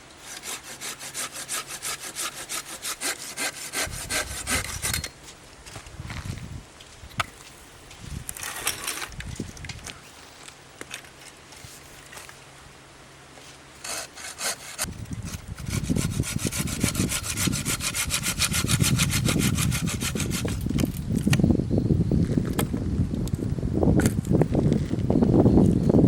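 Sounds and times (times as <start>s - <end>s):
hand saw cutting wood: 0.0s - 5.2s, 13.8s - 20.7s.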